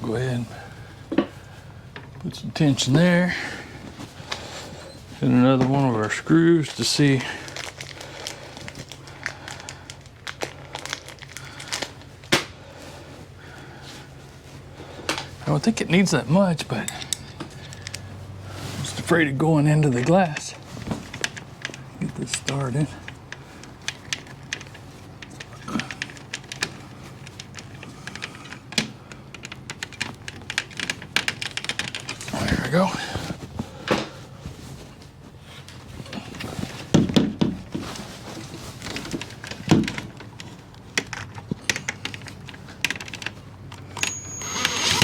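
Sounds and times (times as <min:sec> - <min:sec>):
steady low hum: 0:00.0 - 0:45.0
screws and hand tools clicking: 0:43.9 - 0:45.0.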